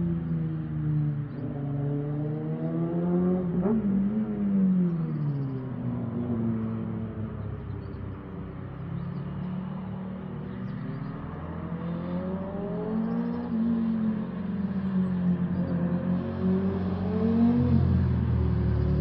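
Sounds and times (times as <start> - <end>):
motorcycle engine accelerating: 11.8 - 19.0.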